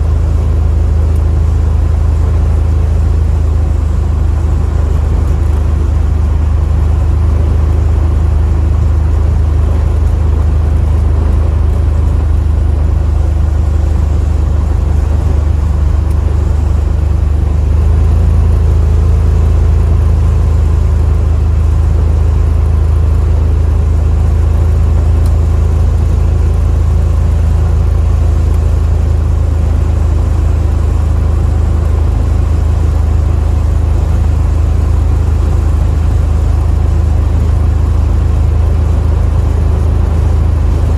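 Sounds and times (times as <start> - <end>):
car engine and road drone: 0.0 - 40.9.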